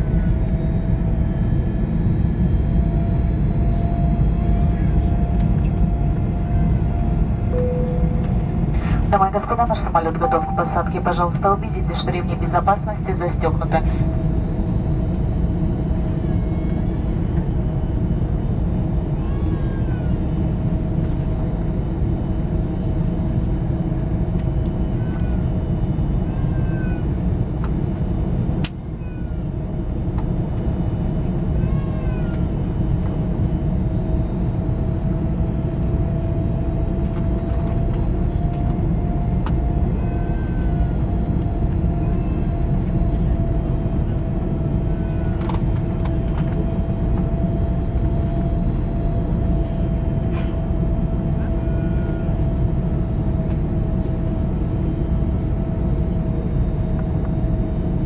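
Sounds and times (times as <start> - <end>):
airplane cabin engine rumble: 0.0 - 58.0
steady engine whine: 0.0 - 58.0
faint high cries: 19.2 - 20.4, 31.5 - 32.5.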